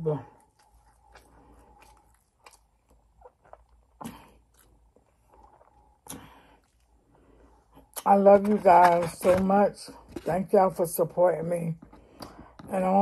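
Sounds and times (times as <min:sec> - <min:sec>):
person chewing food: 0:00.2 - 0:08.1.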